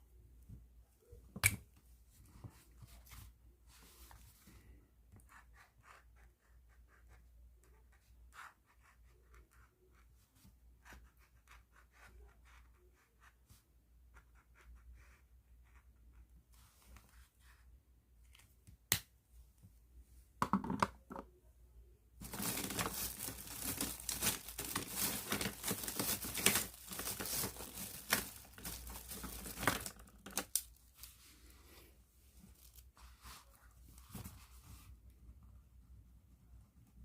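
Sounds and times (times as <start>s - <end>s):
plastic bag rustling: 22.2s - 31.1s
scratching and crinkling: 22.2s - 31.2s.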